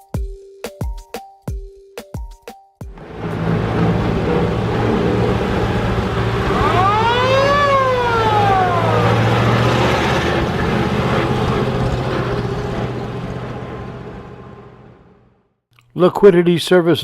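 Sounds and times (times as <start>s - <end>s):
truck engine running: 2.9s - 15.4s
fire truck siren winding: 4.4s - 12.8s.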